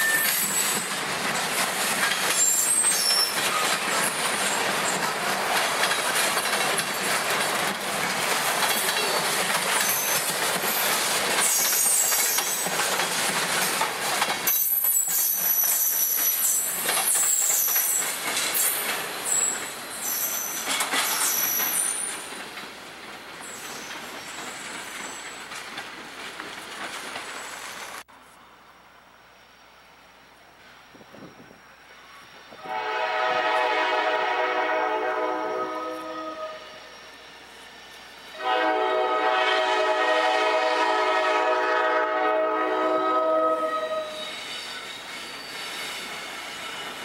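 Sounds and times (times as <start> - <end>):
high-pitched wheel squeals: 0.0 - 0.9, 2.4 - 3.7, 43.6 - 47.0
freight train wheels clattering: 0.0 - 28.0.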